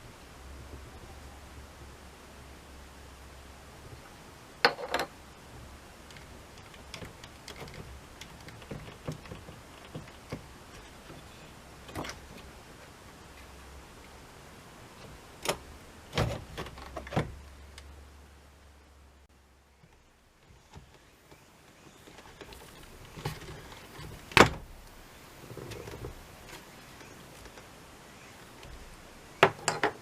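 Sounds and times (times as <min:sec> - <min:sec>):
small hard parts clicking: 0:06.0 - 0:12.6.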